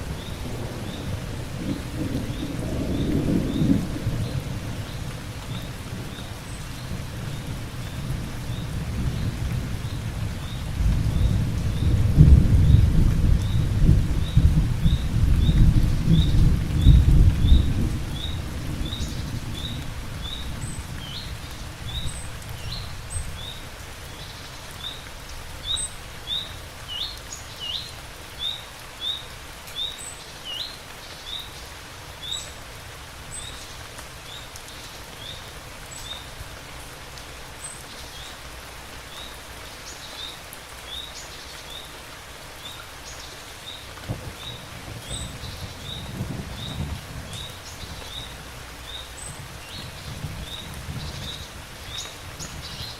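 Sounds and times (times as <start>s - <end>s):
thunder rumbling: 0.0s - 23.4s, 44.0s - 52.8s
steady rain: 0.0s - 52.9s.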